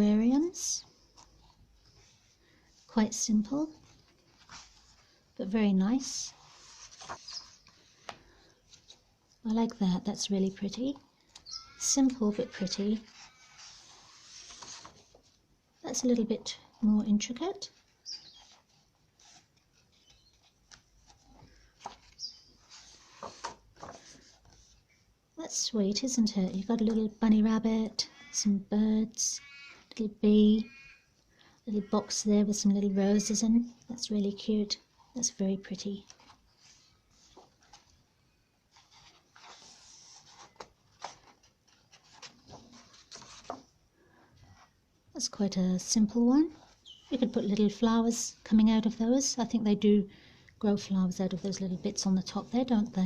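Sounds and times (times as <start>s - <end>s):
paper page turn: 6.3s - 7.8s, 12.0s - 15.3s, 18.4s - 24.8s, 38.7s - 43.7s
soft taps and rustles of pages: 6.4s - 9.8s, 17.8s - 24.9s, 36.0s - 38.1s, 38.7s - 43.8s.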